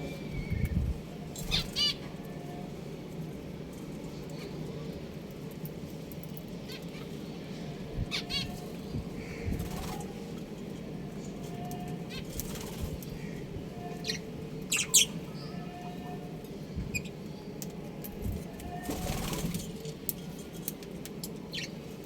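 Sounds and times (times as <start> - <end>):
wings flapping: 9.5 - 10.2, 12.3 - 13.0, 18.8 - 19.8
budgerigars chirping: 14.1 - 15.2.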